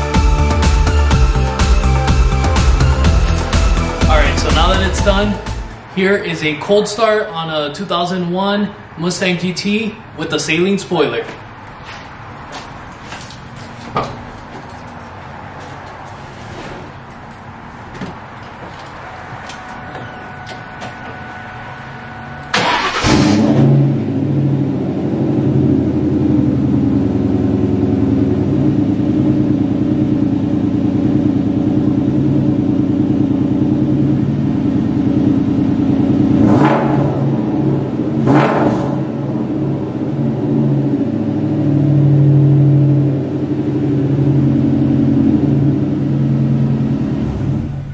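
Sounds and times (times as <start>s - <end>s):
car engine starting and idling: 0.0s - 10.8s, 11.5s - 47.9s.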